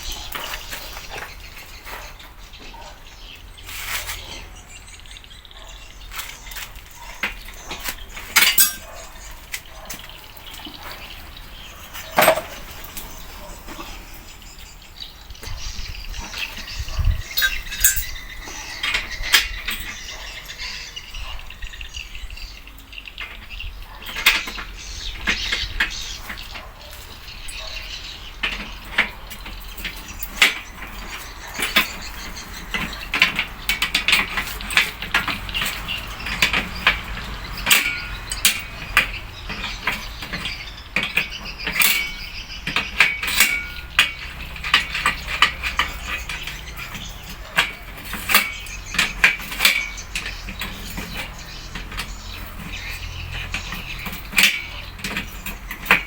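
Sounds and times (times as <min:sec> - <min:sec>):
sharp clicks and metallic clinks: 0:06.1 - 0:13.3, 0:15.4 - 0:20.6, 0:23.2 - 0:56.0.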